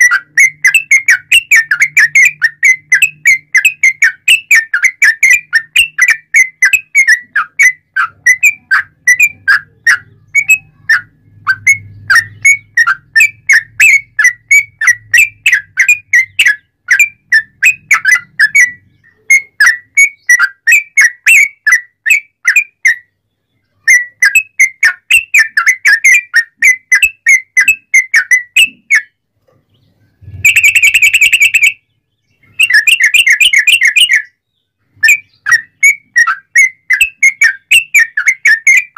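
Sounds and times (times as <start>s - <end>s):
bird whistled chirps: 0.0s - 29.2s, 29.8s - 38.9s
harsh buzzy bird call: 29.8s - 38.9s.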